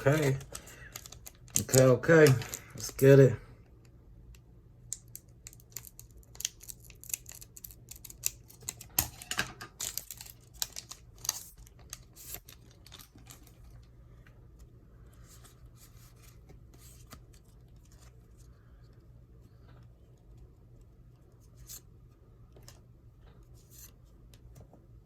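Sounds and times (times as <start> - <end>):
wrapper crinkling and tearing: 0.0 - 3.0, 5.4 - 13.8
cards clicking: 0.1 - 3.1.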